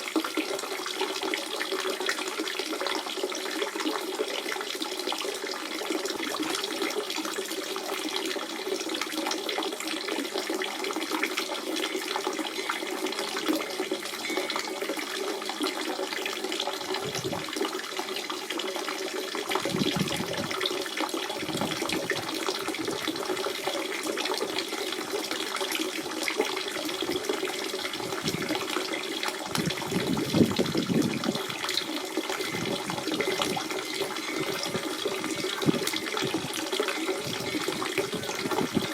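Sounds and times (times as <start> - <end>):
water gurgling: 0.0 - 38.9
spring water splashing: 19.5 - 38.9.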